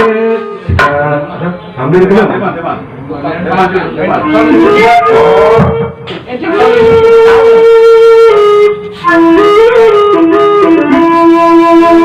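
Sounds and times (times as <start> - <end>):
bamboo flute melody: 4.0 - 12.0.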